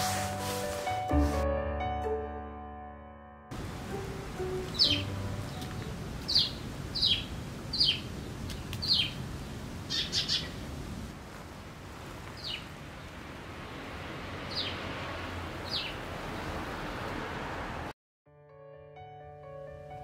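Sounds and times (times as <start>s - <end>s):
bird calling high down-slurred calls: 9.9s - 10.5s.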